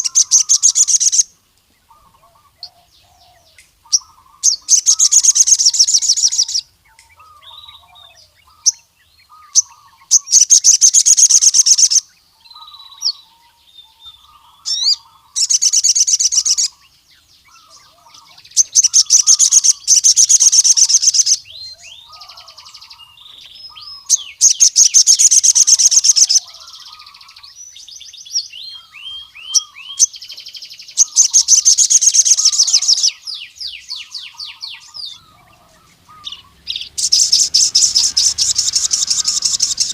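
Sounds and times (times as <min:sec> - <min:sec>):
bird singing high trills: 0:00.0 - 0:39.9
soft low bird chirping: 0:00.0 - 0:39.9
short sharp bird chirps: 0:28.6 - 0:39.9.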